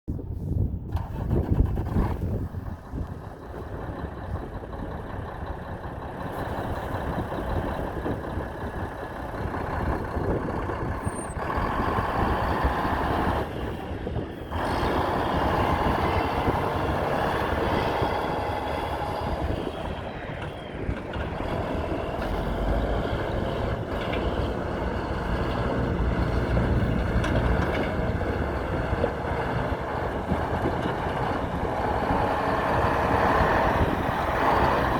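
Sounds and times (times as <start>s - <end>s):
diesel truck engine running: 0.2s - 34.9s.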